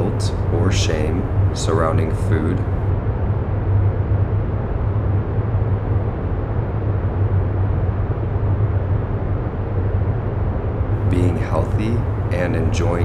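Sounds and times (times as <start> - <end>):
low background noise: 0.0 - 3.1, 10.9 - 13.0.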